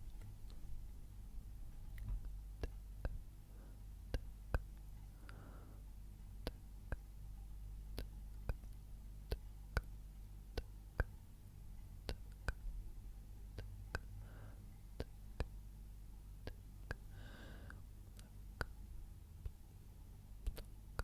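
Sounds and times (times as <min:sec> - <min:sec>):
faint low hum: 0:00.0 - 0:21.0
soft breathy sounds: 0:01.9 - 0:07.2, 0:13.5 - 0:15.6, 0:16.4 - 0:18.8
sharp quiet clicks: 0:20.4 - 0:21.0.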